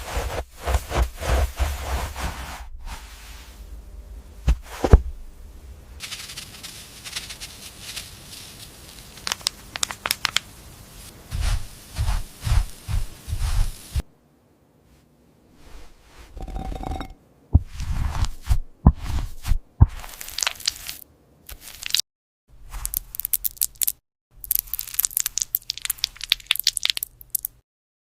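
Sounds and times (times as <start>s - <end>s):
crinkling and rustling: 6.0s - 14.1s.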